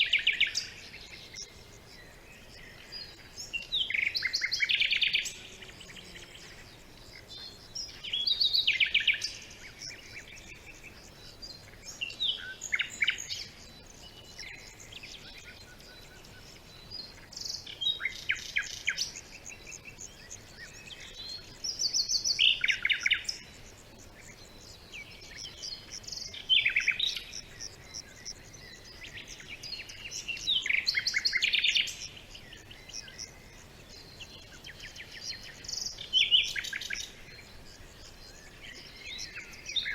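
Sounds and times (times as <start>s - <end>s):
faint bird chirps: 0.0s - 39.9s
songbirds trilling: 0.0s - 39.9s.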